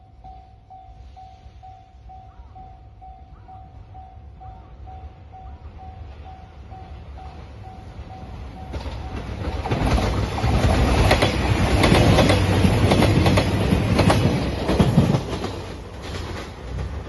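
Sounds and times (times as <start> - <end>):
level-crossing bell dinging: 0.0 - 9.5
diesel train passing: 0.0 - 17.0
wheels clacking over rail joints: 8.2 - 17.0.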